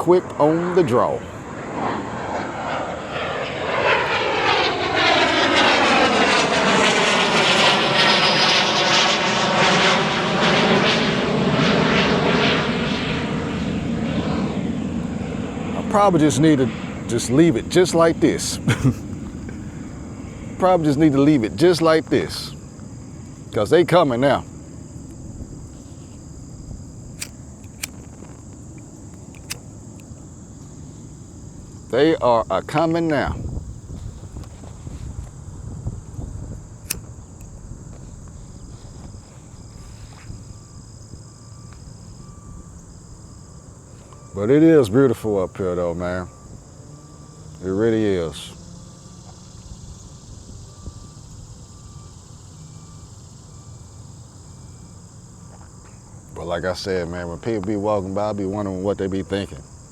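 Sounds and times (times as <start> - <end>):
airplane passing overhead: 0.0 - 59.9
high-pitched insect chorus: 0.0 - 59.9
sharp clicks: 27.2 - 30.1.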